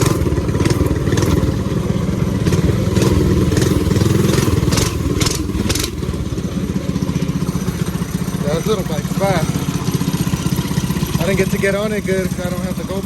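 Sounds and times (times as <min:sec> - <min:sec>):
minibike engine running hard: 0:00.0 - 0:13.0
sharp clattering ticks: 0:02.4 - 0:06.0.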